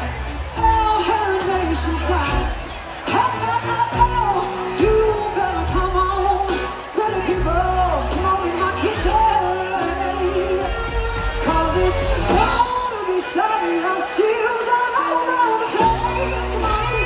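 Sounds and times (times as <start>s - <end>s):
low bass: 0.0s - 12.7s
live band playing slow blues: 0.0s - 17.0s.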